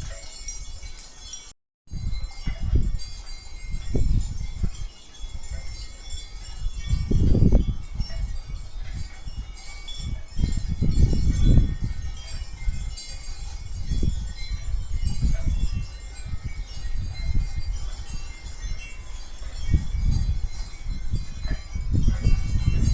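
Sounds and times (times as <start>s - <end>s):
wind chimes tinkling: 0.0s - 22.9s
wind rumbling on microphone: 0.0s - 22.9s.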